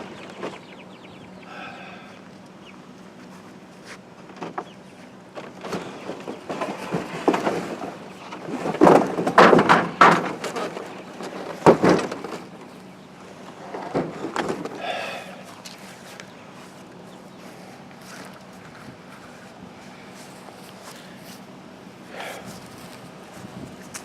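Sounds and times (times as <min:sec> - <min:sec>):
knocks and clatter of frame: 0:05.4 - 0:12.5.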